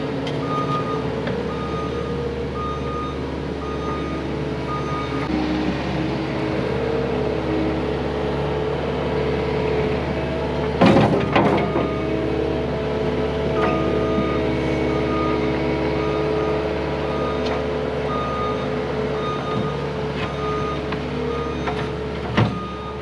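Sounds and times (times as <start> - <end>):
diesel engine running: 0.0 - 23.0
reversing alarm beeping: 0.4 - 5.3, 13.6 - 17.5, 18.1 - 21.8, 22.5 - 23.0.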